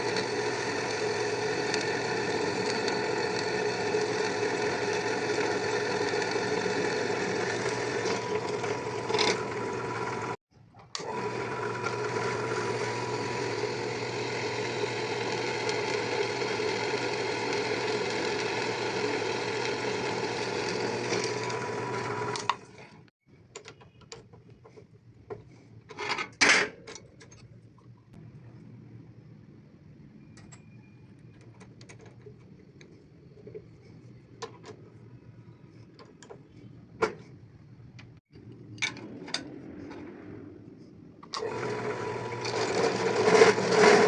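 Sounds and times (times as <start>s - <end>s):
small electric motor running: 0.0s - 10.4s, 11.0s - 22.8s, 41.4s - 44.0s.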